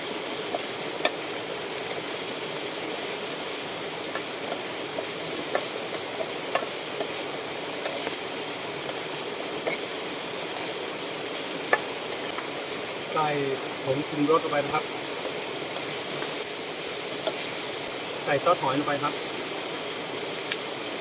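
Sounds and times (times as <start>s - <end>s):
food sizzling in oil: 0.0s - 21.0s
spatula clicking against pan: 4.1s - 7.2s.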